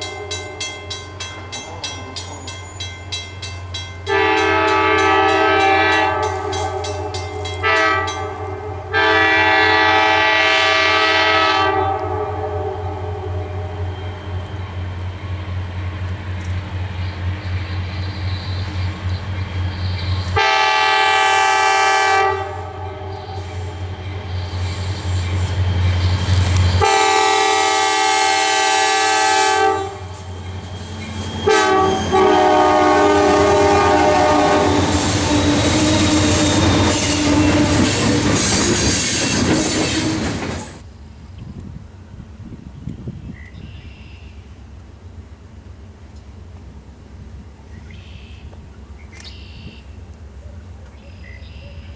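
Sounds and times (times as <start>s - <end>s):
locomotive rumble: 0.0s - 51.9s
locomotive air horn blasts: 4.0s - 14.5s, 20.3s - 23.6s, 26.6s - 30.2s, 31.4s - 37.9s
wheels clacking over rail joints: 34.0s - 40.9s.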